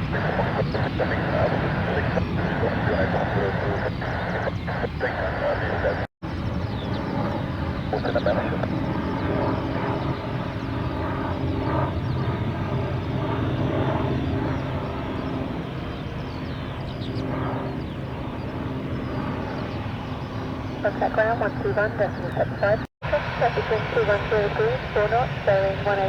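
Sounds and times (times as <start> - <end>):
aircraft engines droning: 0.0 - 26.0.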